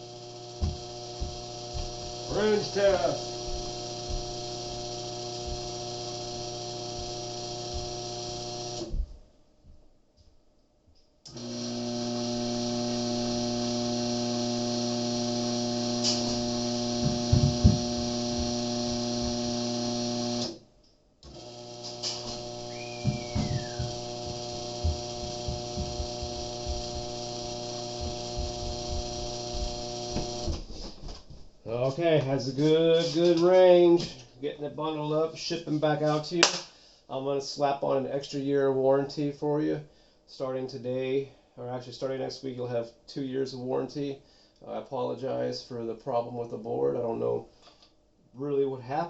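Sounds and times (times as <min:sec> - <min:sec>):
electrical hum of fixed tones: 0:00.0 - 0:09.3, 0:11.0 - 0:36.5.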